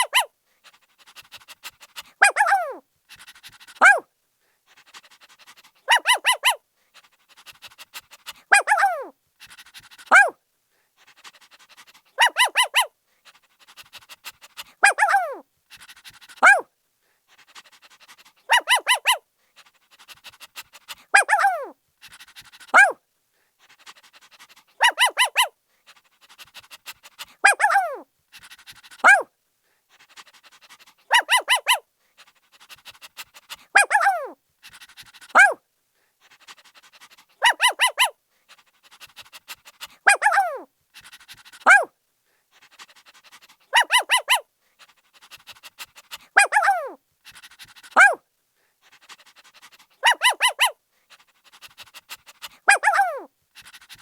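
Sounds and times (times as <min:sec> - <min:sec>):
puppy barking and yelping: 0:00.0 - 0:00.3, 0:01.0 - 0:04.1, 0:04.9 - 0:10.4, 0:11.4 - 0:12.9, 0:13.6 - 0:16.7, 0:17.6 - 0:19.2, 0:20.0 - 0:23.0, 0:23.8 - 0:29.3, 0:30.4 - 0:35.6, 0:36.6 - 0:38.2, 0:38.9 - 0:41.9, 0:43.6 - 0:44.5, 0:45.2 - 0:48.2, 0:49.1 - 0:54.0.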